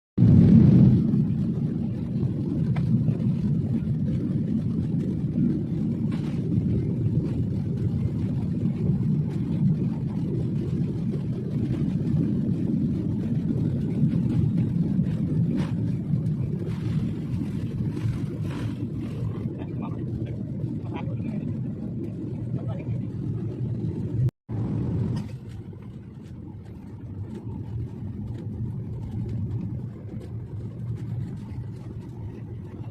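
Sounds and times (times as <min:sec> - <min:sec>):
airliner cabin rumble: 0:00.2 - 0:32.9.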